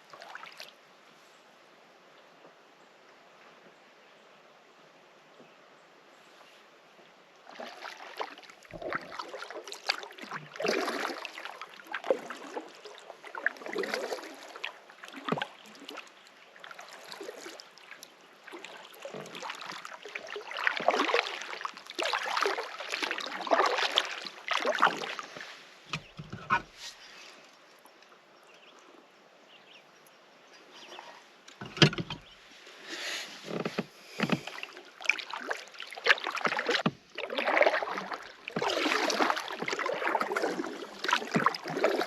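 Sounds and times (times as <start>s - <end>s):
canoe paddle splashing in water: 0.0s - 0.7s, 7.4s - 27.4s, 30.7s - 42.0s.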